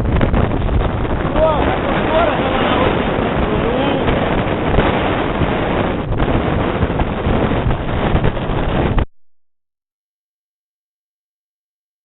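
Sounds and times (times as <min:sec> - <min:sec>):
strong wind buffeting microphone: 0:00.0 - 0:09.1.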